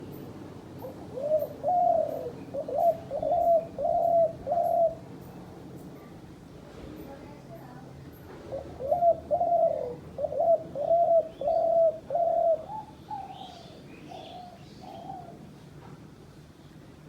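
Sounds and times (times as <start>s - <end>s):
dove cooing: 0.8s - 5.2s, 8.4s - 15.4s.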